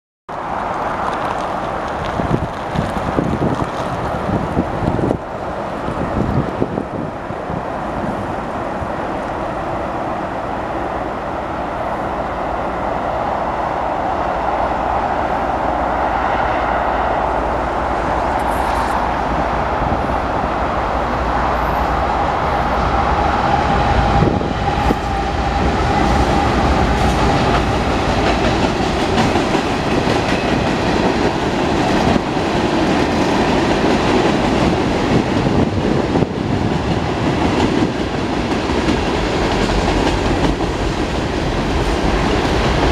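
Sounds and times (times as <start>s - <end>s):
diesel locomotives approaching: 0.3s - 42.9s
wheels clacking over rail joints: 24.6s - 42.9s.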